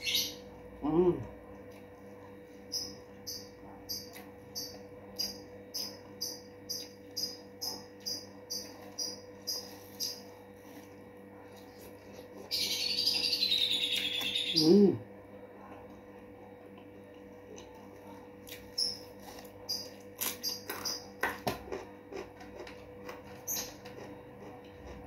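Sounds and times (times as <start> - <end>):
birds chirping: 0.0 - 0.4, 12.5 - 15.0
bird warbling song: 12.5 - 14.9.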